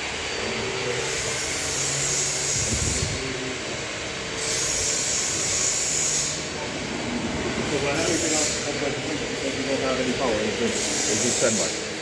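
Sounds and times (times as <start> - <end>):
workshop machinery noise: 0.0 - 12.0
hiss: 1.0 - 3.4, 4.4 - 6.5, 7.8 - 8.8, 10.6 - 12.0.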